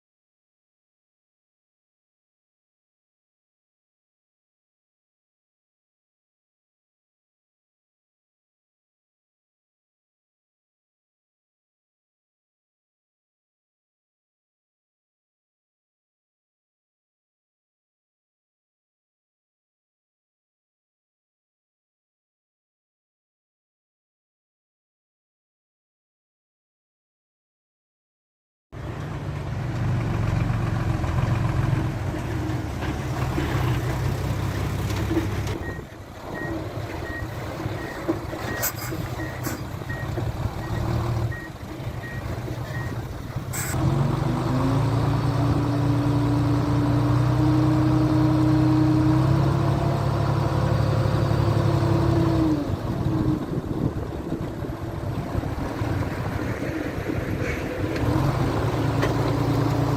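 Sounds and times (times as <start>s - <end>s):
heavy machinery diesel engines: 28.8s - 59.9s
reversing alarm beeping: 35.6s - 43.0s
engine revving: 43.5s - 53.4s, 57.9s - 59.9s.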